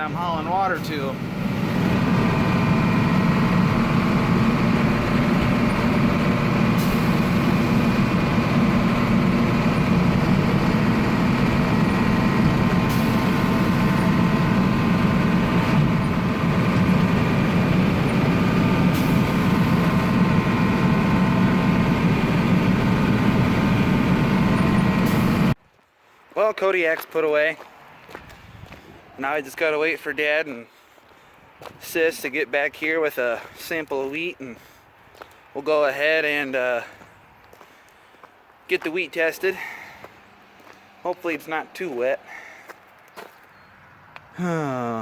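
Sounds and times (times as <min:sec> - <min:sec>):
truck engine drone from inside cab: 0:00.0 - 0:25.6.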